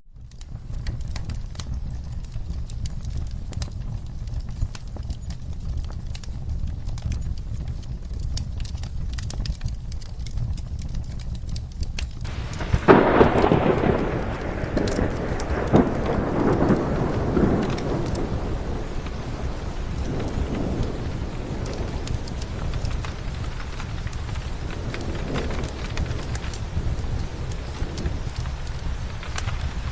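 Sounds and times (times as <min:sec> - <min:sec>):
crackling fireplace: 0:00.0 - 0:29.9
steady rain: 0:00.1 - 0:29.9
rolling thunder: 0:12.2 - 0:29.9.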